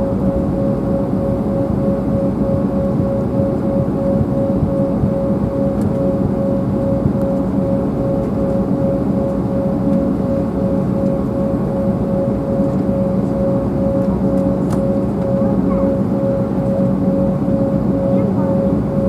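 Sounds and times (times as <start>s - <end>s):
jet engines droning in cabin: 0.0s - 19.0s
pulsing mid-pitched hum: 0.0s - 19.0s.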